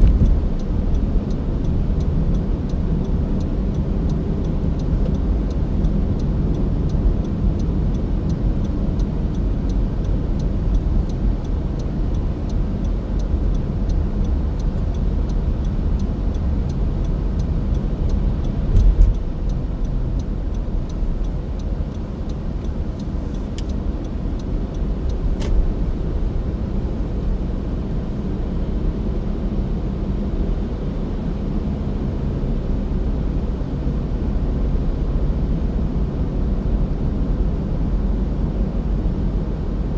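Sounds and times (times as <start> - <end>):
car tyres and engine rumble: 0.0 - 39.9
faint ticking: 3.4 - 28.2.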